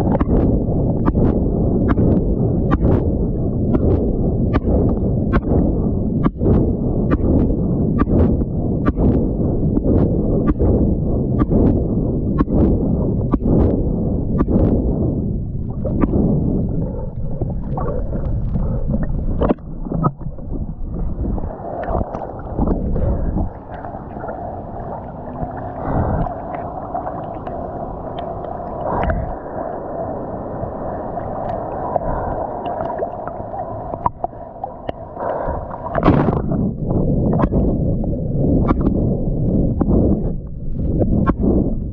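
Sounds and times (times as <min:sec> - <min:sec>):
sea water sloshing and splashing: 0:00.0 - 0:10.8, 0:11.4 - 0:41.9.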